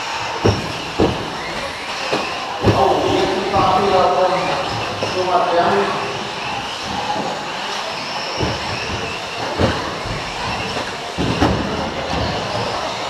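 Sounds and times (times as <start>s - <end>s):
rc truck motors whining: 0.0s - 13.0s
sharp clattering knocks: 8.3s - 12.9s.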